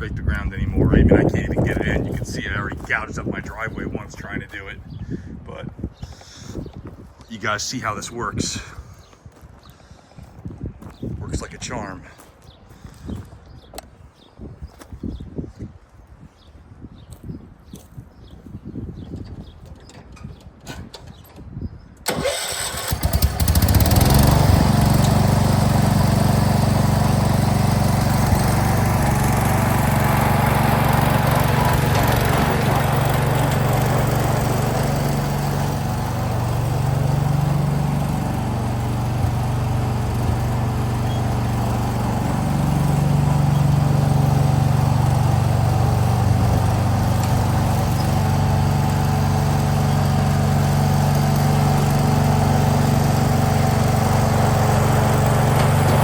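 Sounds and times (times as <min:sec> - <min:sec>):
garden tractor engine: 0:22.0 - 0:56.0.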